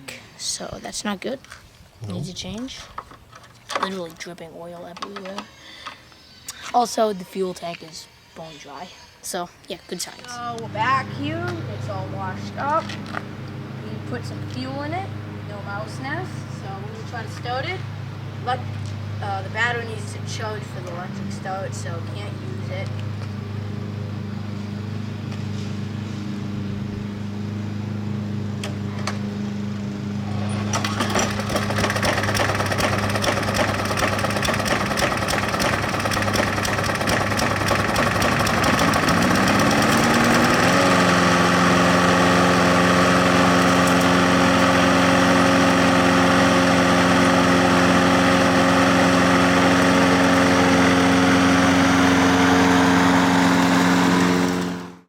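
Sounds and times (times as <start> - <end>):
lawn mower engine running: 19.0 - 55.0.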